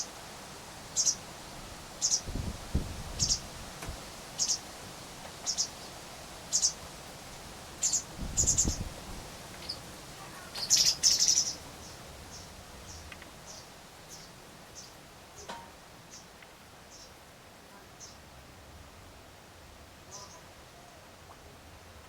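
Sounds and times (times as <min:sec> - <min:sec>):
bird chirping: 0:01.0 - 0:01.2, 0:02.0 - 0:02.3, 0:03.2 - 0:03.4, 0:04.4 - 0:04.6, 0:05.5 - 0:05.9, 0:06.5 - 0:06.8, 0:07.8 - 0:08.9, 0:10.5 - 0:15.5.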